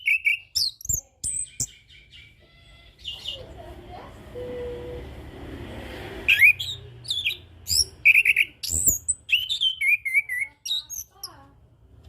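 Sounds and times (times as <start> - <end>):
thrush singing whistled notes: 6.3 - 11.2.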